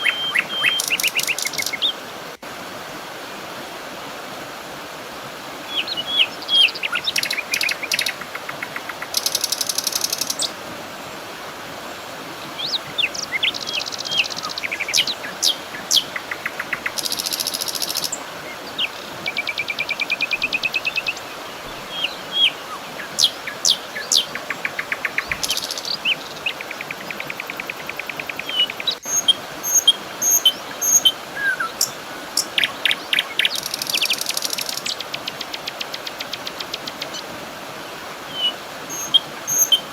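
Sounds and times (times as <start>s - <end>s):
birds chirping and trilling: 0.0s - 1.9s, 5.7s - 10.5s, 12.6s - 35.6s, 38.3s - 39.9s
flowing water rushing: 0.0s - 39.9s.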